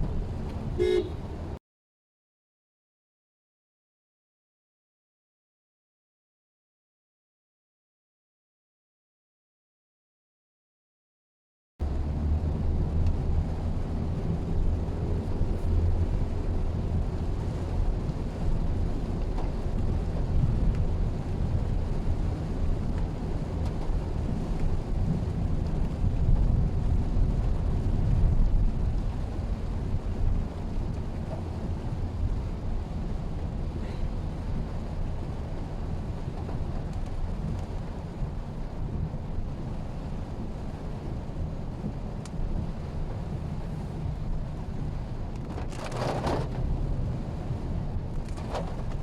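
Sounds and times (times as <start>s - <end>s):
car engine rumble: 0.0s - 1.6s, 11.8s - 49.0s
road noise: 0.0s - 1.6s, 11.8s - 49.0s.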